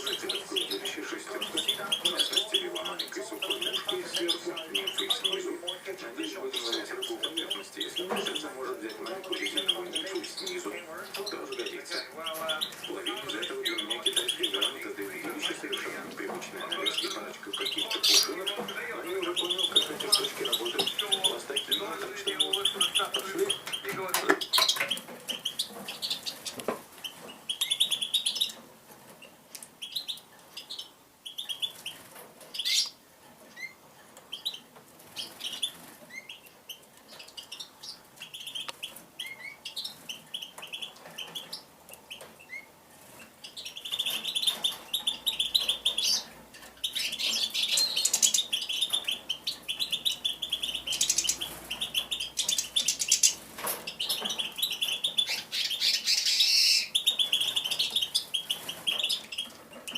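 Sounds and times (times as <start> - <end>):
songbird chirping and twittering: 0.0 - 59.9.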